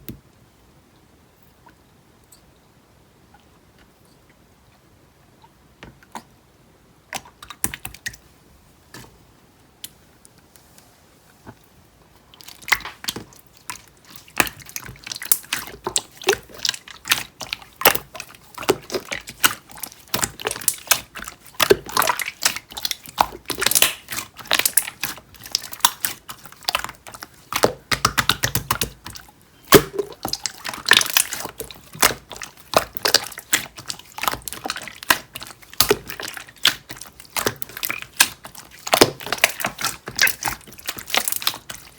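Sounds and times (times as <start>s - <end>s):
slime squishing with sticky clicks: 7.1s - 8.2s, 12.3s - 41.9s.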